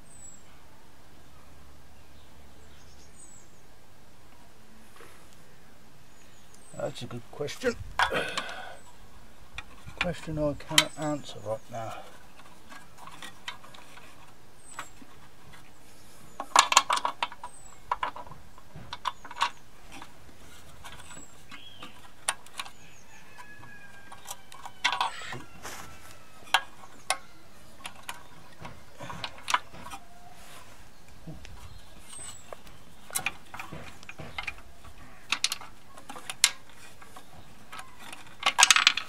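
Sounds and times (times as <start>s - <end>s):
metal tools clinking and knocking: 9.6s - 15.6s, 16.4s - 25.7s, 26.4s - 30.1s, 31.5s - 39.0s
metal parts clattering: 16.4s - 22.8s, 24.1s - 25.6s, 27.8s - 30.1s, 31.9s - 39.0s.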